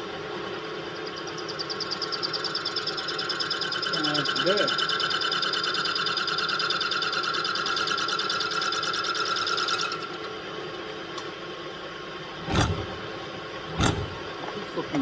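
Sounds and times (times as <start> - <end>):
low machine hum: 12.3 - 14.5.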